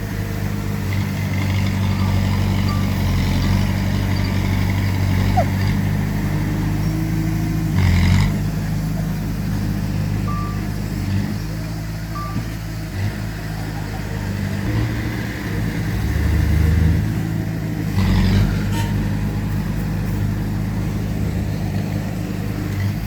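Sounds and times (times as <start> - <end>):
heavy diesel machinery running: 0.0 - 23.0.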